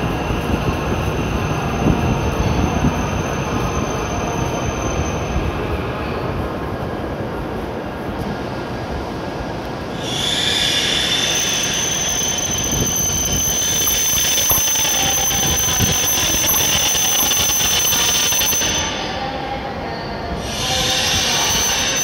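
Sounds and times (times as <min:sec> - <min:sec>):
train running gear rumble: 0:00.0 - 0:22.0
high-pitched brake squeal: 0:02.3 - 0:05.6, 0:10.0 - 0:22.0.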